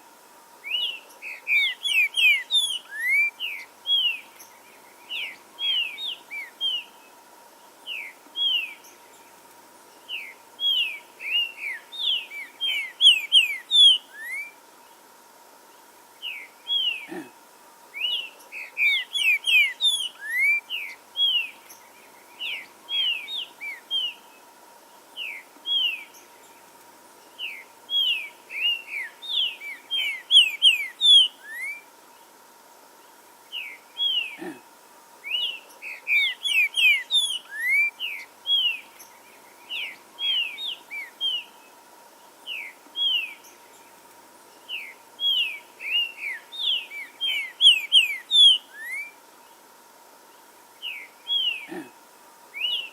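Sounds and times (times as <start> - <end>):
bird singing whistled notes: 0.6 - 7.0, 7.8 - 9.0, 10.0 - 14.6, 18.0 - 24.3, 25.2 - 26.6, 27.4 - 31.9, 35.2 - 41.6, 42.4 - 43.9, 44.5 - 49.2, 50.8 - 51.7, 52.5 - 52.9.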